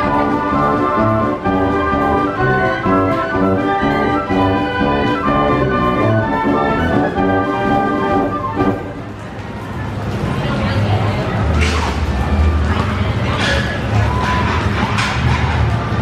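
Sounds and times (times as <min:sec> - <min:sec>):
band organ playing march: 0:00.0 - 0:09.1.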